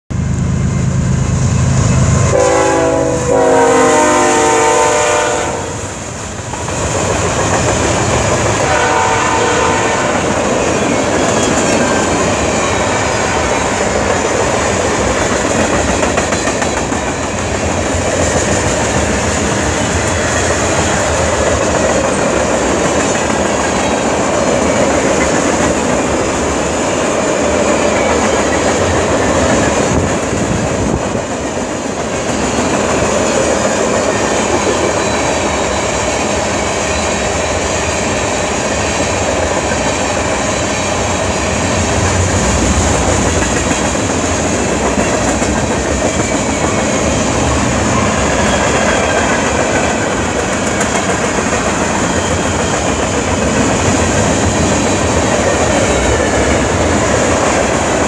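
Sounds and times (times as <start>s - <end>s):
diesel locomotive engine rumble: 0.1s - 58.0s
multi-note train horn blasts: 2.0s - 6.0s, 8.6s - 10.5s.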